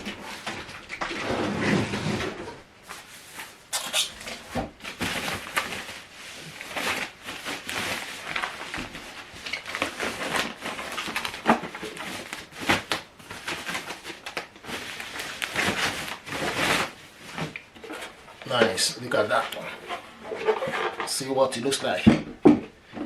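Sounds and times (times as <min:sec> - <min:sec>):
packaging rustling and scraping: 0:00.0 - 0:22.0.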